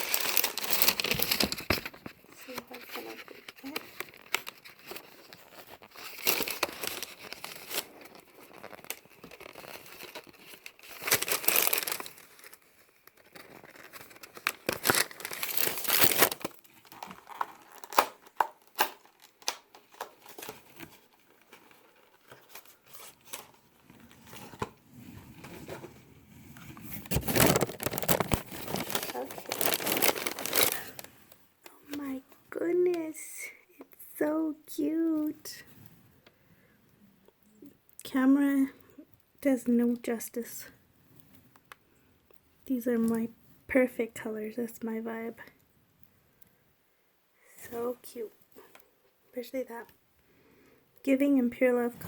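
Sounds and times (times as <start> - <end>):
paper and cardboard crinkling: 0.0 - 26.0, 26.6 - 31.2
packaging clicks: 6.0 - 20.8, 27.1 - 31.1.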